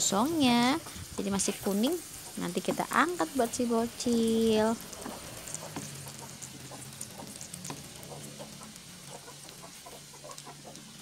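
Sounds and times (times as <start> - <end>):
butter sizzling in frying pan: 0.0 - 11.0
hens clucking: 4.9 - 11.0.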